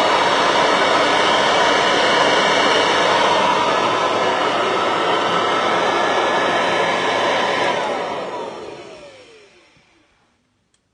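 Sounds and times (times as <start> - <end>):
vacuum cleaner motor winding down: 0.0 - 10.4.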